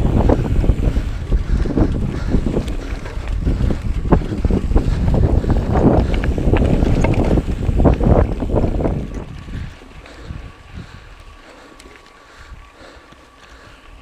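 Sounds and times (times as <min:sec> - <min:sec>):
bike knocks and rattles: 0:00.0 - 0:09.7
low rumble: 0:00.0 - 0:11.1
wind buffeting microphone: 0:00.0 - 0:14.0.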